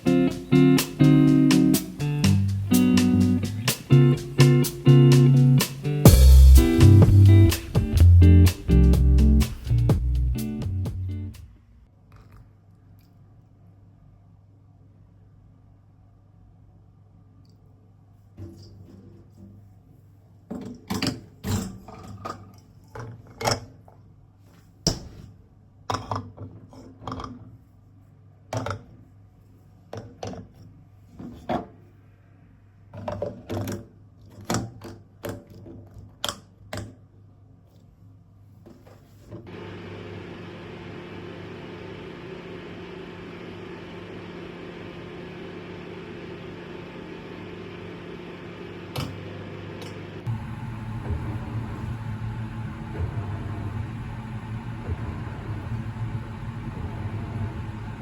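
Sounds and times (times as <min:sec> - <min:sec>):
appliance humming: 0:39.5 - 0:58.0.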